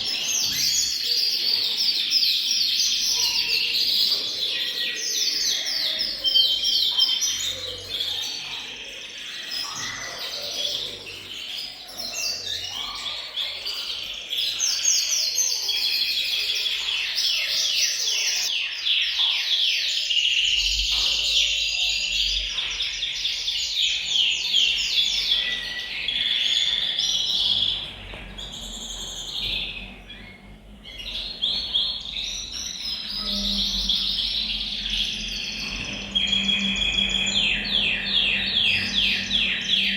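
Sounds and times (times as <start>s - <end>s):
canaries singing trills: 0.0s - 39.9s.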